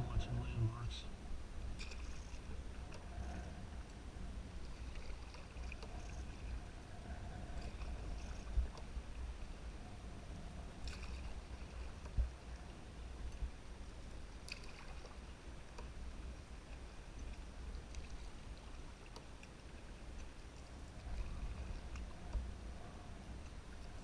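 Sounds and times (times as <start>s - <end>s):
wind rumble on microphone: 0.0s - 19.0s, 19.9s - 24.0s
paddle splashes and drips: 1.6s - 9.7s, 10.8s - 24.0s.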